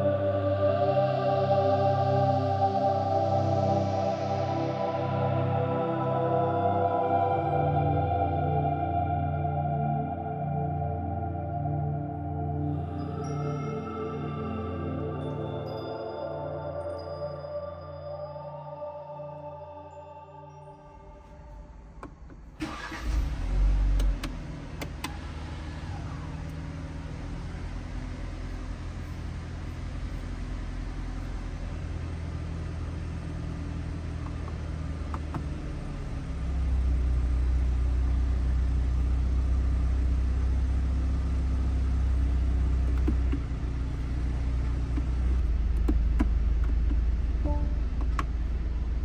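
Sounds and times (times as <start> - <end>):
car engine starting and idling: 21.1 - 49.0.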